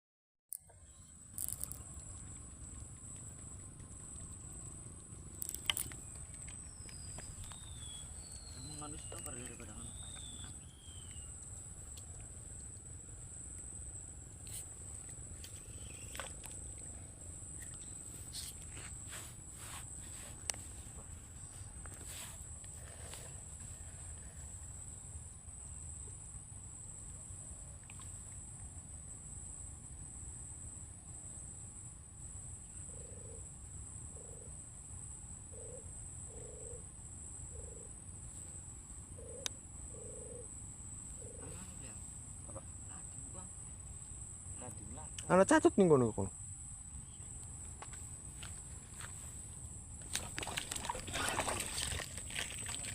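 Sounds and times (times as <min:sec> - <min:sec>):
insects trilling: 0:00.5 - 0:52.9
high-pitched insect drone: 0:00.6 - 0:23.5
soft rustles: 0:17.6 - 0:24.5
croaking animal calls: 0:50.1 - 0:52.9.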